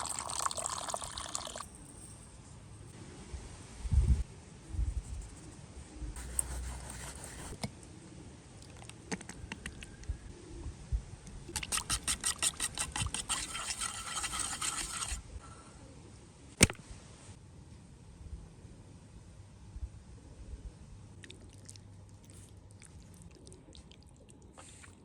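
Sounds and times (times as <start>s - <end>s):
rapid scraping strokes: 11.5s - 15.3s.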